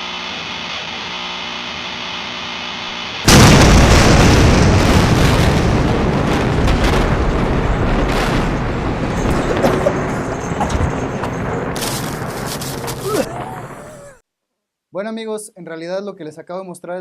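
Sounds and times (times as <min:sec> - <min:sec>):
explosion blast: 0:03.2 - 0:14.2.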